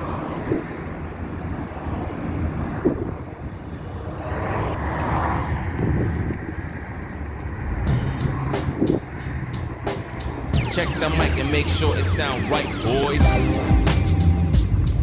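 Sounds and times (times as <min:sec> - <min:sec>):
wind noise: 0:00.0 - 0:10.5
car engine and road noise: 0:00.0 - 0:15.0.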